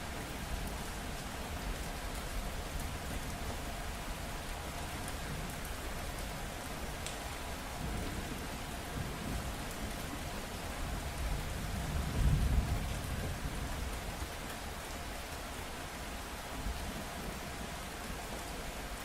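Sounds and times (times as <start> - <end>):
steady rain falling: 0.0 - 19.0
low thunder rumble: 11.4 - 13.8.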